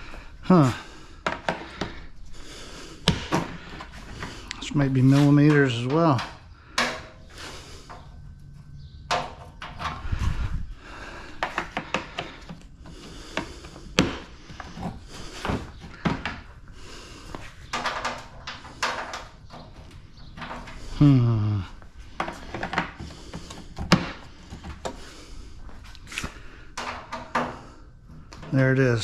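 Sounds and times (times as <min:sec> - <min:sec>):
hand tools on metal: 0:03.8 - 0:07.2.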